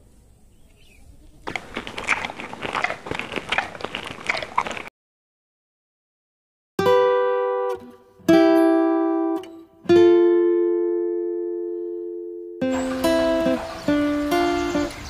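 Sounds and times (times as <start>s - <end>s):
plastic toys crunching on sand: 1.4s - 4.9s.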